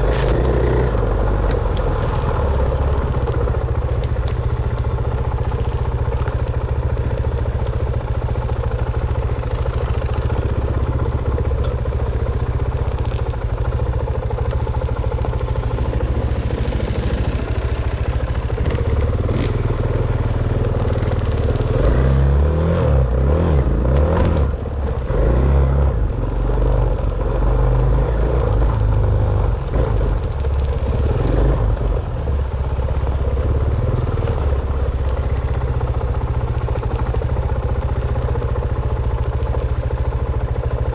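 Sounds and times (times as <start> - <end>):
dirt bike engine revving: 18.6 - 26.1.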